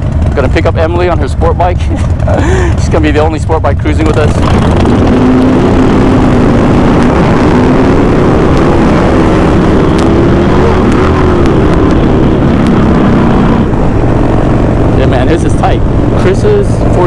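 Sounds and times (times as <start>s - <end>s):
motorcycle engine running: 0.0s - 17.0s
wind rushing on microphone: 4.2s - 17.0s.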